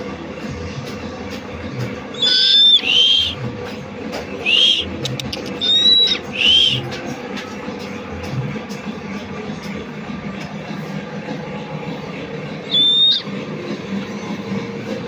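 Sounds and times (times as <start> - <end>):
owl high-pitched calls: 2.1 - 3.4, 4.4 - 4.9, 5.5 - 6.9, 12.6 - 13.3.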